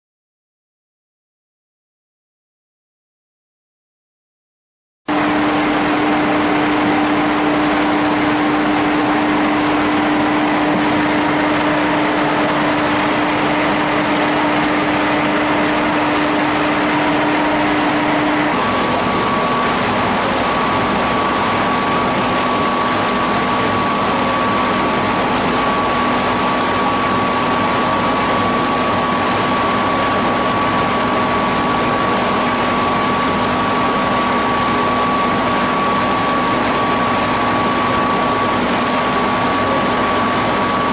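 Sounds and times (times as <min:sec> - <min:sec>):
high mechanical whine: 0:05.1 - 0:40.9
veneer lathe running: 0:09.8 - 0:34.5.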